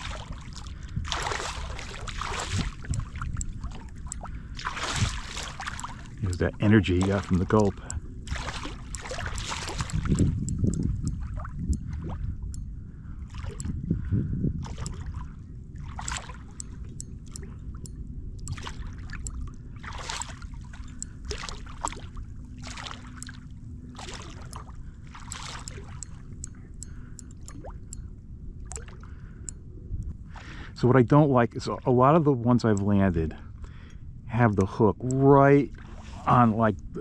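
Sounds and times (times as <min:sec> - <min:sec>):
water slapping against hull: 0:00.0 - 0:12.5, 0:13.1 - 0:27.9, 0:28.6 - 0:29.4
low rumble: 0:00.0 - 0:37.0.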